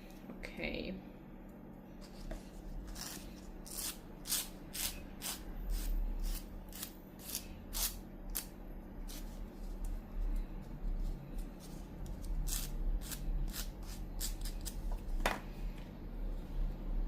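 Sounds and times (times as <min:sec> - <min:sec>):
nail file scraping nail: 0:02.9 - 0:08.5, 0:12.1 - 0:14.8.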